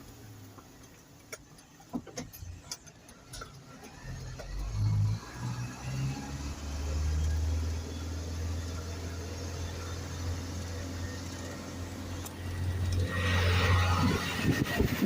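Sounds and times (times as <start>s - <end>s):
diesel truck engine humming: 0.0s - 15.0s.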